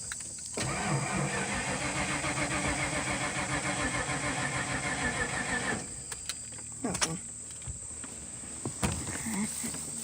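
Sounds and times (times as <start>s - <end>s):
engine cranking on starter motor: 0.6s - 6.2s.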